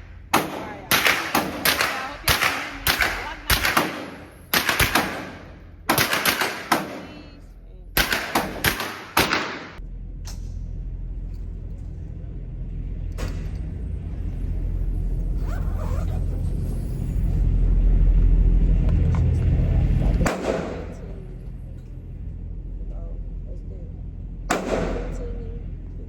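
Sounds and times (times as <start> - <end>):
low rumble: 0.0 - 6.0, 6.7 - 8.8, 9.6 - 26.0
fainter gunshots: 0.0 - 7.4, 8.0 - 9.8, 20.3 - 21.2, 24.5 - 25.3
sharp gunshots: 0.0 - 7.4, 8.0 - 9.8, 20.3 - 21.1, 24.5 - 25.2.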